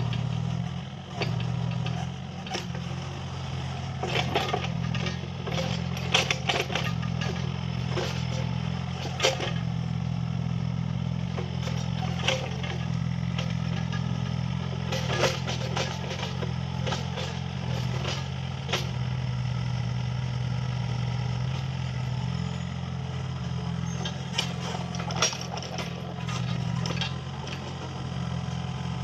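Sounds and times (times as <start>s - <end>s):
excavator diesel engine running: 0.0s - 29.0s
metallic clanks and knocks: 1.1s - 2.9s, 4.0s - 9.8s, 11.4s - 19.0s, 23.9s - 27.9s.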